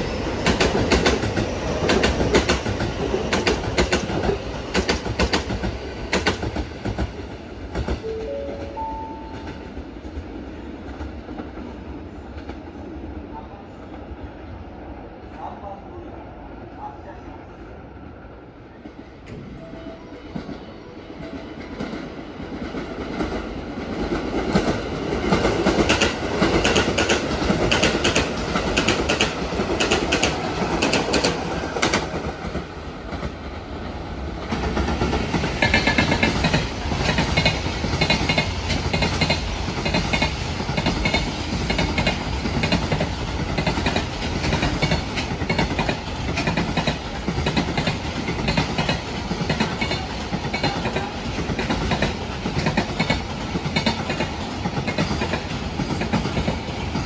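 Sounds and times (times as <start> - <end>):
freight train wheels clickety-clack: 0.0 - 12.8, 20.2 - 57.0
electric train passing: 0.0 - 57.0
train wheels clattering over rail joints: 0.4 - 8.0, 24.4 - 32.6, 34.5 - 57.0.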